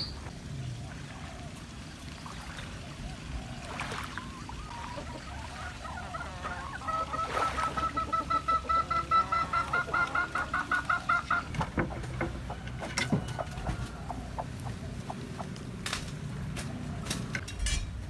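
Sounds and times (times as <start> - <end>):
chicken clucking: 4.3 - 16.0.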